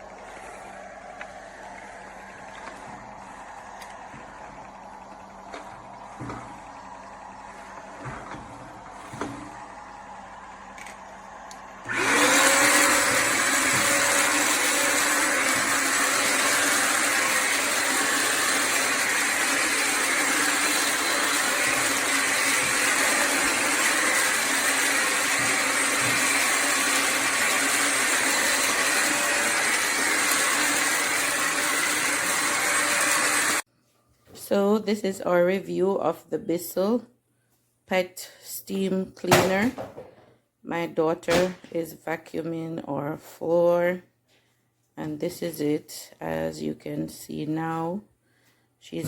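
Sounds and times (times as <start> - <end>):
vacuum motor whine: 0.0 - 33.6.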